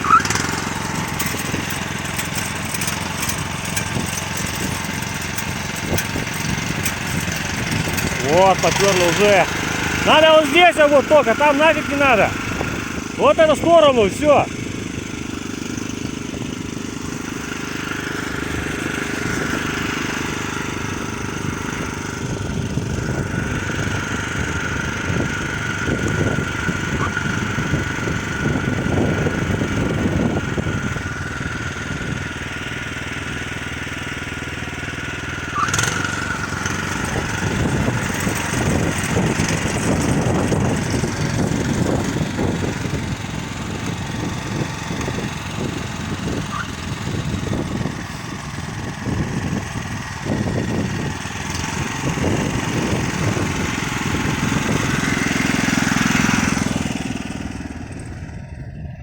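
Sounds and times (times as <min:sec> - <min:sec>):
walk-behind tractor engine running: 0:00.0 - 0:59.0.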